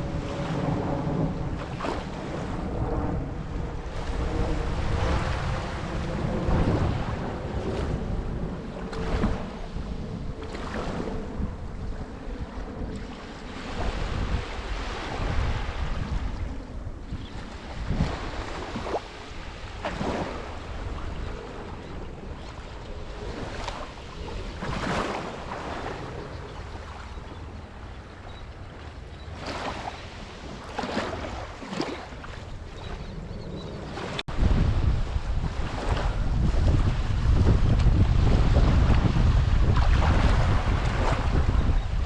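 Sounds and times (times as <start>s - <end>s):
small waves breaking on beach: 0.0s - 2.8s, 3.7s - 11.5s, 13.0s - 28.1s, 28.7s - 33.2s, 33.8s - 42.0s
wind buffeting microphone: 0.0s - 42.0s.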